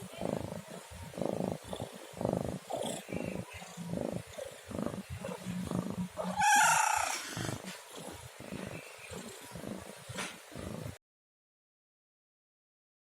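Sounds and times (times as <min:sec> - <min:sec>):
cat rumbling: 0:00.0 - 0:11.0
cat meowing loudly: 0:06.4 - 0:07.3.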